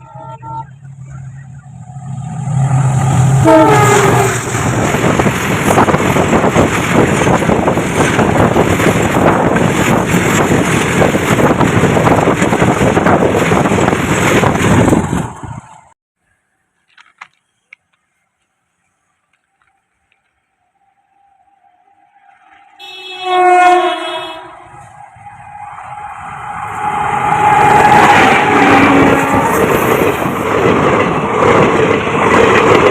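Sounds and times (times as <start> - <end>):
train horn: 0.0 - 1.9, 3.1 - 4.7, 21.8 - 30.0
train wheels rattling on rails: 0.9 - 15.7, 24.6 - 32.9.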